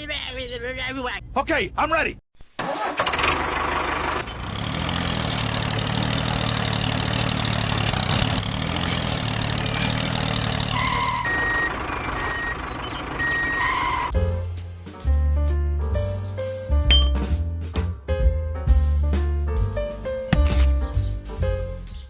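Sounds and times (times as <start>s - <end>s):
tractor motor humming: 2.6s - 14.1s
short high beeps: 16.9s - 17.2s.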